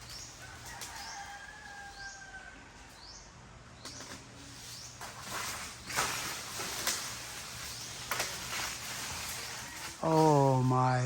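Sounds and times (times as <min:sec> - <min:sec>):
birds chirping: 0:00.0 - 0:08.6.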